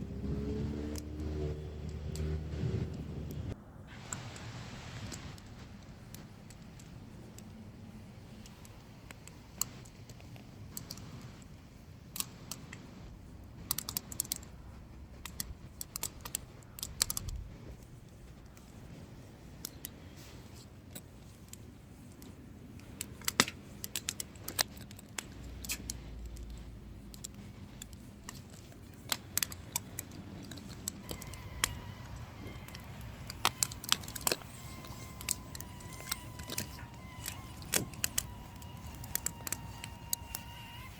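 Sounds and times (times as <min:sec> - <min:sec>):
low steady background noise: 0:00.0 - 0:40.9.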